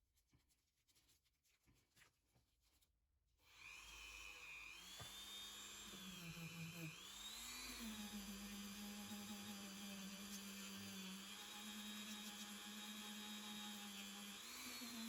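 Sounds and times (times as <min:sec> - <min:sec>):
high-speed rotary tool whine: 0:03.5 - 0:15.0.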